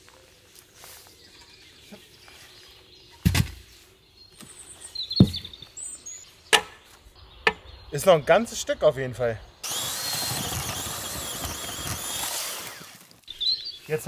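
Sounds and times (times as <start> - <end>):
bird chirping: 0.1 - 9.6, 13.2 - 14.0
heavy knocks on wood: 5.2 - 5.5.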